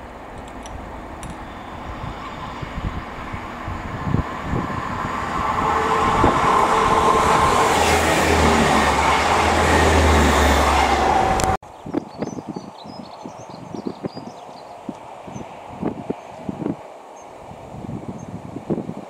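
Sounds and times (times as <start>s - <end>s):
diesel train passing: 0.0s - 11.6s.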